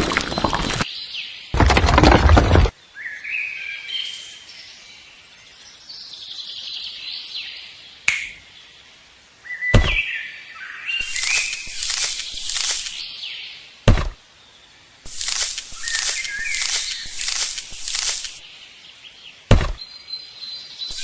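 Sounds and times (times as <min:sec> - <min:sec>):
birds chirping and whistling: 0:09.5 - 0:13.0, 0:15.1 - 0:18.4, 0:19.6 - 0:21.0.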